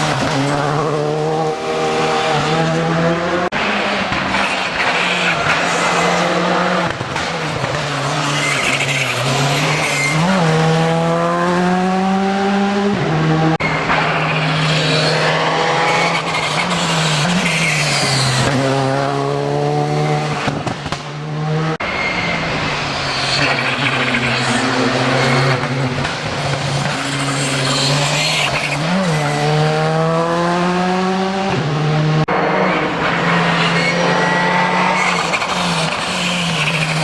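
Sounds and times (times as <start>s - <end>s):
rally car engine revving: 0.0s - 37.0s
tyre squeal: 7.9s - 10.7s, 13.6s - 18.7s, 21.8s - 25.9s, 26.7s - 29.5s, 32.4s - 37.0s.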